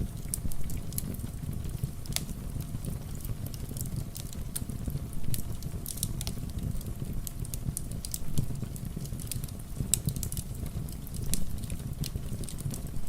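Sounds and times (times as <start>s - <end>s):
rain: 0.0s - 13.0s
wood fire crackling: 0.0s - 13.0s.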